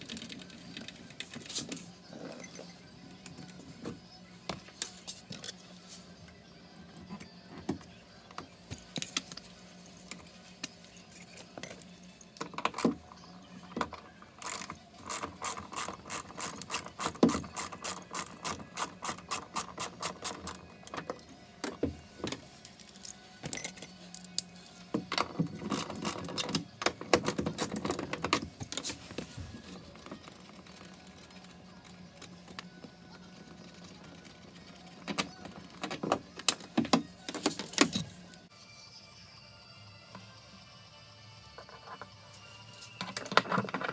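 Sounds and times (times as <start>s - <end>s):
mechanical clicking and rattling: 13.9s - 21.0s.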